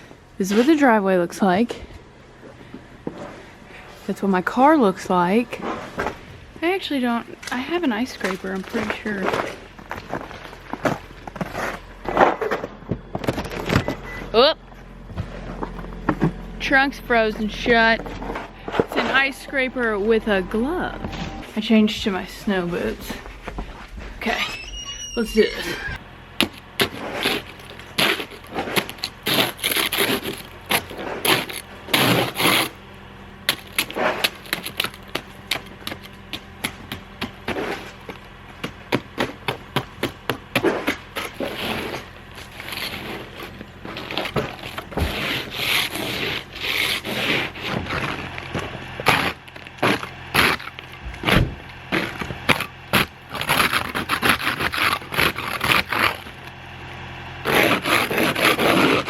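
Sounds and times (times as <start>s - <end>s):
ice scraper scraping ice: 26.4s - 32.8s, 33.5s - 38.2s, 38.9s - 56.5s, 57.4s - 59.0s.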